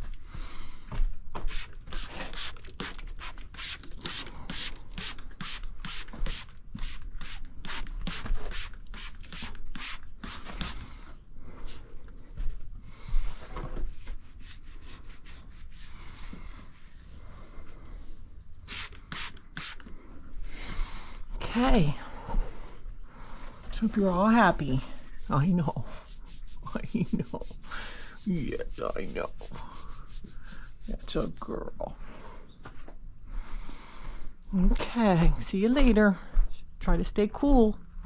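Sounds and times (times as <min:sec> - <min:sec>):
faint steady high whine: 0:00.0 - 0:38.0
short rubbing or scraping strokes: 0:13.9 - 0:19.8, 0:24.9 - 0:27.6.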